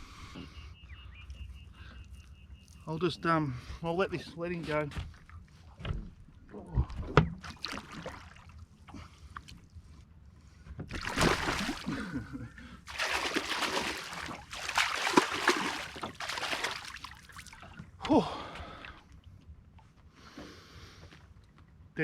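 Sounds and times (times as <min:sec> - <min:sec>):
water splashing and sloshing: 0:03.9 - 0:20.0.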